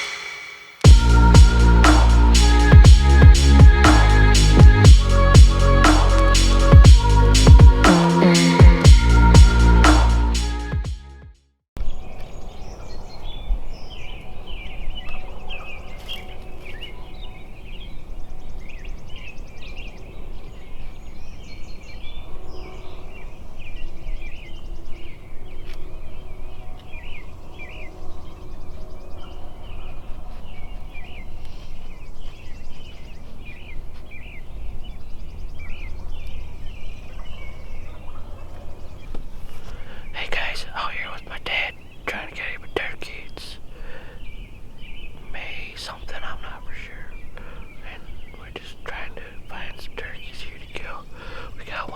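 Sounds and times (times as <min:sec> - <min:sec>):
steady low rumble: 0:00.8 - 0:11.1
birds singing and chirping: 0:11.8 - 0:51.9.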